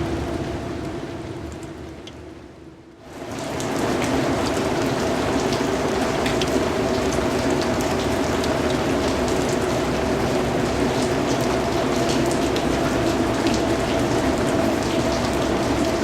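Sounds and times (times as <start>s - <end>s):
rain falling: 0.0s - 16.0s
raindrops ticking: 3.4s - 16.0s.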